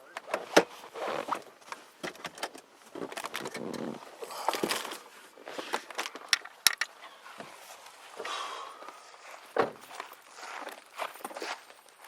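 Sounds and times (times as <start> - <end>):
clicks and knocks of belongings: 1.3 - 7.0.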